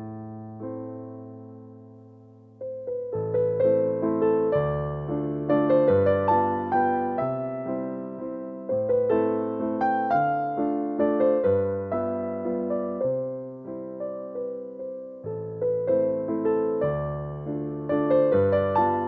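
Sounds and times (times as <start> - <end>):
slow piano waltz: 0.0 - 19.0.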